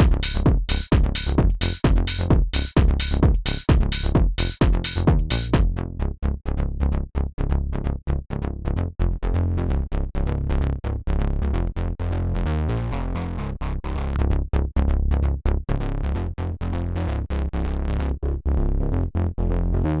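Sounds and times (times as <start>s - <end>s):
drum machine beat: 0.0s - 5.7s
deep synth bass: 0.0s - 20.0s.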